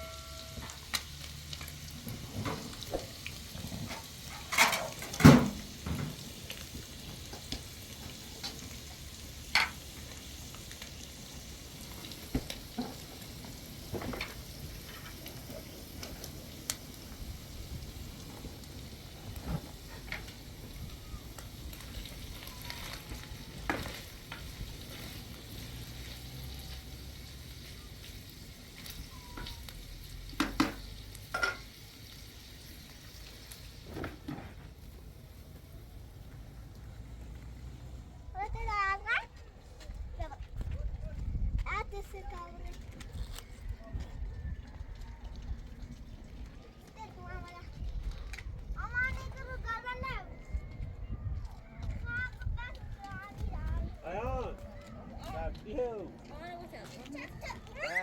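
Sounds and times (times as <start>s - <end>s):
food sizzling in pan: 0.0s - 36.6s.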